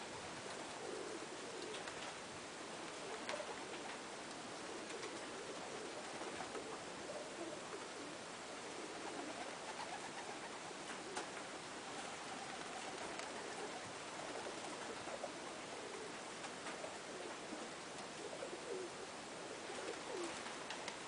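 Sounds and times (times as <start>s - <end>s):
pigeons cooing: 0.0s - 21.0s
faint clicks: 19.8s - 21.0s.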